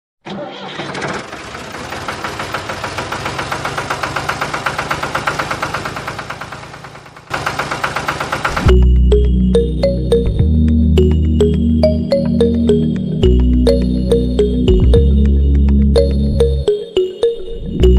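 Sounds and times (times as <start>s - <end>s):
diesel engine knocking: 1.1s - 8.9s.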